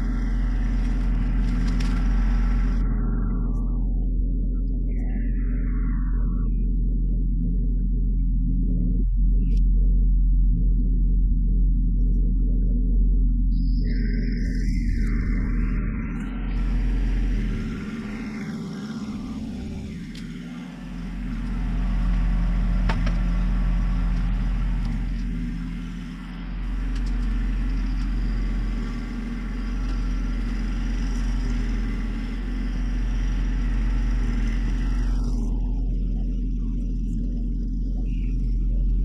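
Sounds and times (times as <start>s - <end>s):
diesel tractor engine running: 0.0s - 7.6s, 13.8s - 39.0s.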